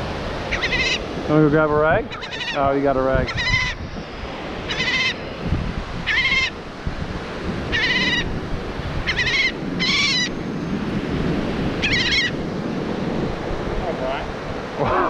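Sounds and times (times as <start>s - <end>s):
surf: 0.0s - 15.0s
wind: 0.0s - 15.0s
seagull distress calls: 0.5s - 1.1s, 2.1s - 2.7s, 3.3s - 3.8s, 4.6s - 5.2s, 6.0s - 6.6s, 7.7s - 8.3s, 9.0s - 10.3s, 11.8s - 12.4s, 14.8s - 15.0s.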